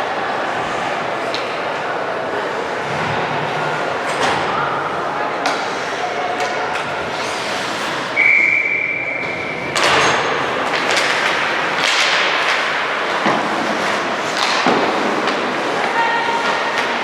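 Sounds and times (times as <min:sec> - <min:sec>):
echoing court and crowd noise: 0:00.0 - 0:17.0
steady high tone: 0:06.7 - 0:09.4.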